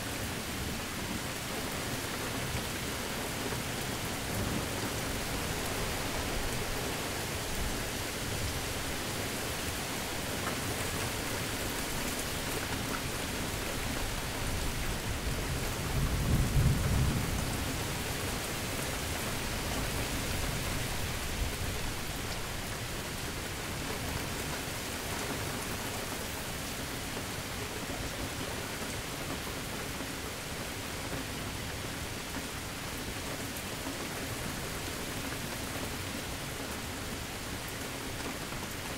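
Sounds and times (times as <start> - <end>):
steady rain falling: 0.0 - 38.9
low roll of thunder: 15.5 - 18.1.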